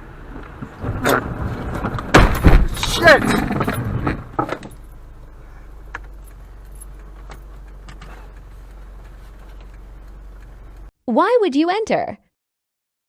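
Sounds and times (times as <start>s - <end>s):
car interior hum while driving: 0.0s - 10.9s
faint clicks and rattles: 5.9s - 10.9s.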